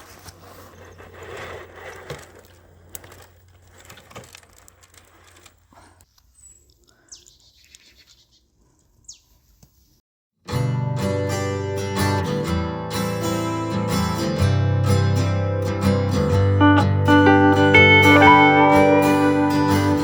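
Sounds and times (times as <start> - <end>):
clicks and rustling: 1.0 - 5.7
strummed acoustic guitar music: 10.5 - 20.0.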